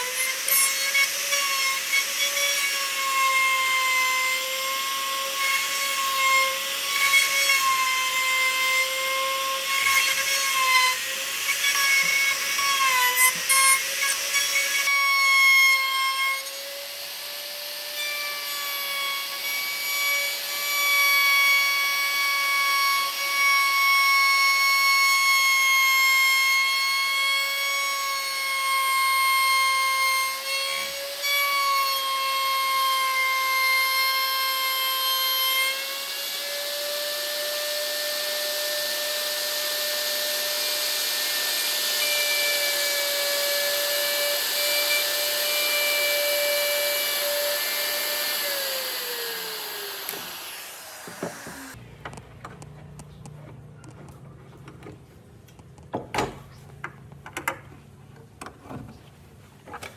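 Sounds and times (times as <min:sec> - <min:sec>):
rough wood cutting noise: 0:34.0 - 0:51.9
power tool high whine: 0:35.7 - 0:51.8.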